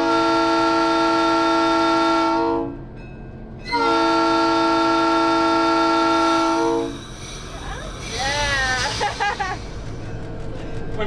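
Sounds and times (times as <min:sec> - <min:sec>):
locomotive horn blasts: 0:00.0 - 0:02.8, 0:03.6 - 0:07.0.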